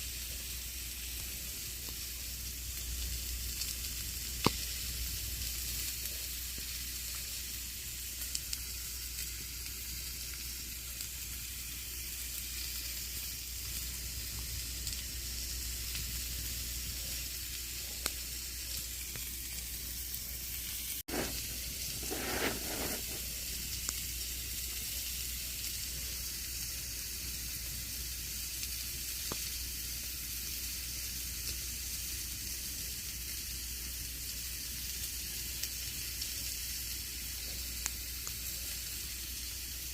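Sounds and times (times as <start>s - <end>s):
campfire crackling and hissing: 0.0s - 39.9s
loud rush of fire: 21.1s - 23.4s.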